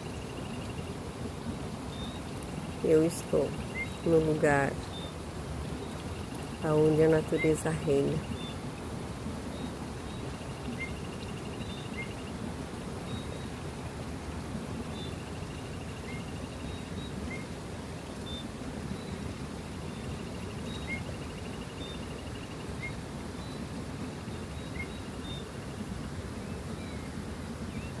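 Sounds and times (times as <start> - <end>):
birds chirping: 1.9 - 8.6.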